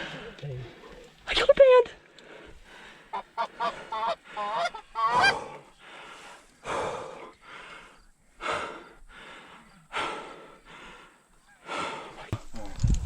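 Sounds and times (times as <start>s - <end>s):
loud breathy huffs: 2.2s - 12.3s
goose honks: 3.1s - 5.4s.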